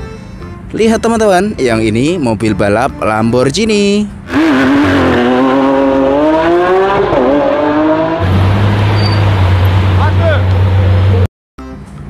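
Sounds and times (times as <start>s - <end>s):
car engine accelerating hard: 4.3s - 11.3s.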